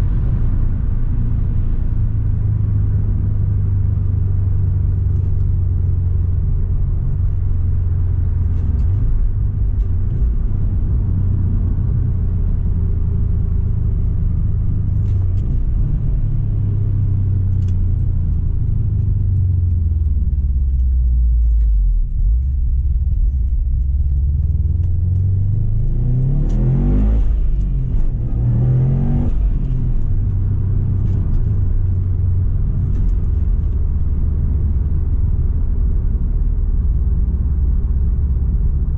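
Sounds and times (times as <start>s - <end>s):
car engine droning and revving: 0.0s - 38.9s.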